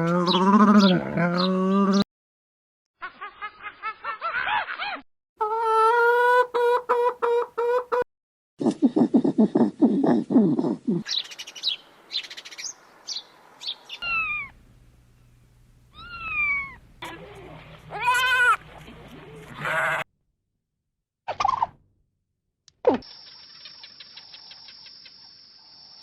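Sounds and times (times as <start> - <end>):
bird chirping: 11.1 - 14.6
falling calls: 11.1 - 14.6, 15.9 - 16.9
trilling call: 11.1 - 14.6, 15.9 - 16.8
low rapid calls: 14.0 - 14.6.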